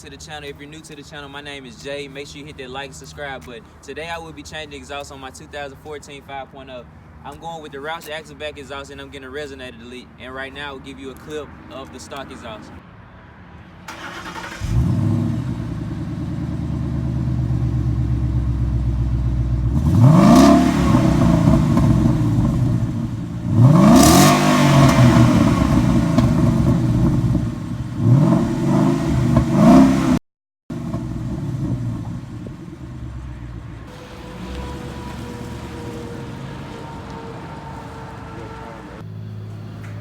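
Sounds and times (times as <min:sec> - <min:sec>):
car engine starting and revving: 0:13.9 - 0:40.0.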